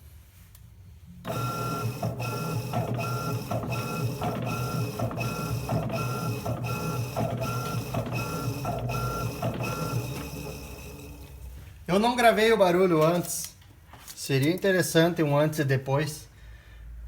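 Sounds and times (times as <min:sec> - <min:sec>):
washing machine motor humming: 0:01.3 - 0:11.7.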